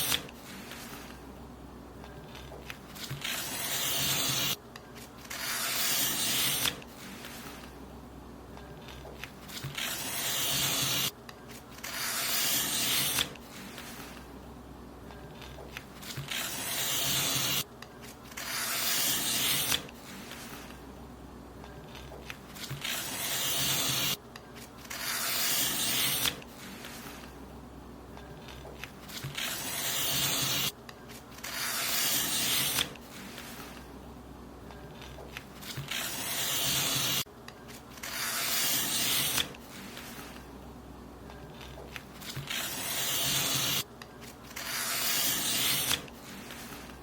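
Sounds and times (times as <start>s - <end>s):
paper being cut: 2.4s - 7.7s, 8.9s - 11.1s, 11.7s - 14.2s, 15.4s - 17.6s, 18.3s - 20.7s, 22.0s - 27.3s, 28.4s - 30.7s, 31.3s - 33.8s, 35.0s - 37.2s, 37.9s - 40.4s, 41.6s - 43.8s, 44.5s - 46.9s.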